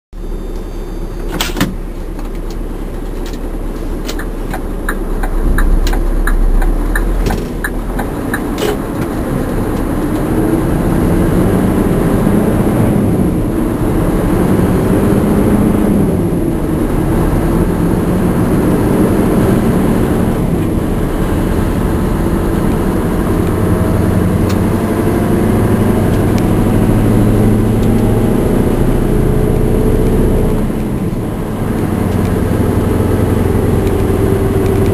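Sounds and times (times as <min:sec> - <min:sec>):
truck engine pulling hard: 0:00.2 - 0:34.9
sharp click: 0:04.0 - 0:09.2
regular ticks: 0:04.1 - 0:09.2.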